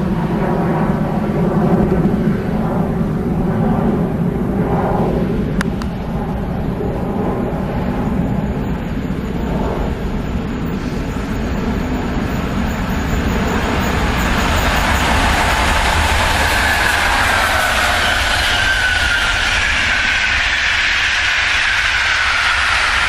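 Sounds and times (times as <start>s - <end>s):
wind rumble on microphone: 0.0s - 23.0s
train rolling on track: 9.8s - 23.0s.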